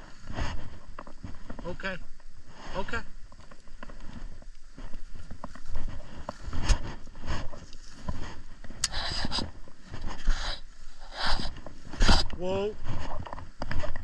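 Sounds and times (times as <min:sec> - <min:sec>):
footsteps through grass: 0:00.0 - 0:14.0
rustling: 0:00.0 - 0:14.0
wind on microphone: 0:05.0 - 0:14.0.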